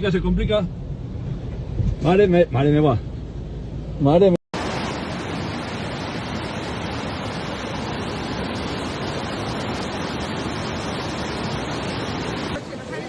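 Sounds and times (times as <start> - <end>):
fast-flowing floodwater rushing: 4.6 - 13.0.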